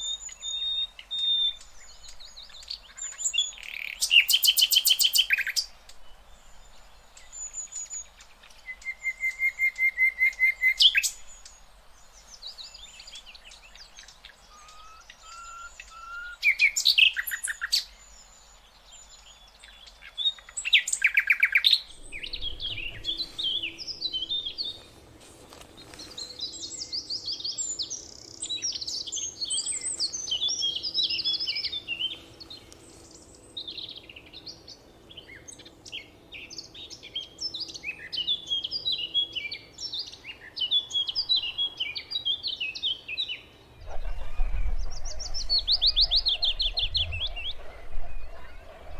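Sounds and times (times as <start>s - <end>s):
songbirds singing: 0.0s - 48.9s
faint steady hum: 21.6s - 42.5s.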